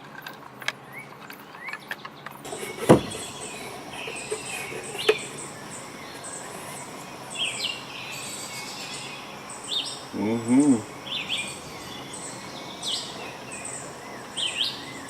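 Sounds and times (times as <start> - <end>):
birds chirping: 0.1 - 15.0
insect-like hiss: 2.4 - 15.0.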